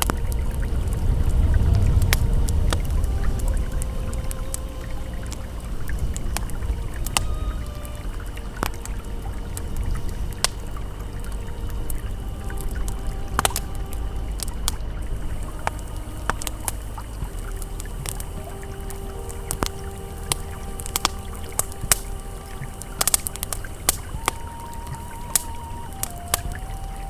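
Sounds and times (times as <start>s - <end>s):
ambient pad tones: 0.0s - 27.0s
campfire crackling and popping: 0.0s - 27.0s
river flowing: 0.0s - 27.0s.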